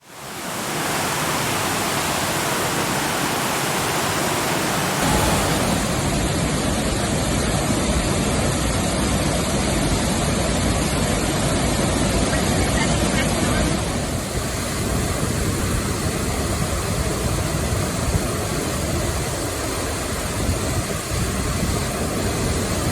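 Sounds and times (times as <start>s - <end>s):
waterfall rushing: 0.0s - 8.3s, 13.3s - 16.4s.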